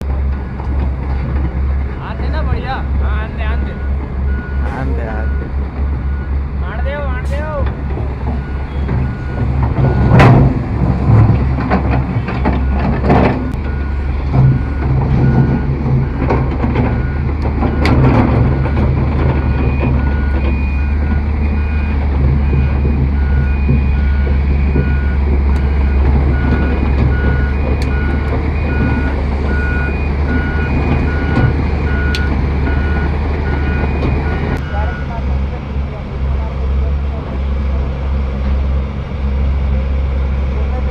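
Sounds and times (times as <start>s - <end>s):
diesel machinery droning: 0.0s - 40.9s
reversing alarm beeping: 3.3s - 6.4s, 8.4s - 10.2s, 12.6s - 12.9s, 13.5s - 16.3s, 16.9s - 35.2s.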